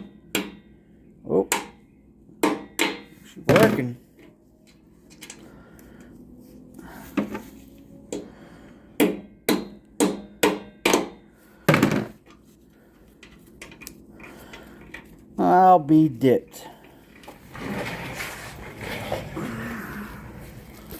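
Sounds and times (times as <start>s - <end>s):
sharp metal knocks of tools: 1.5s - 1.8s.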